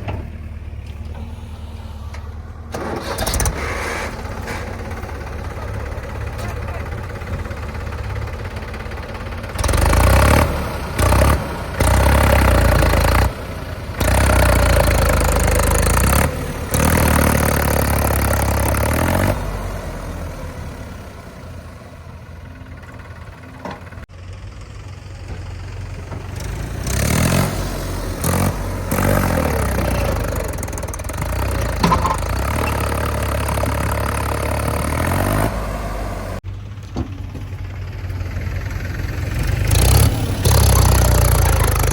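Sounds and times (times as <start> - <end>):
diesel engine revving: 0.0 - 41.9.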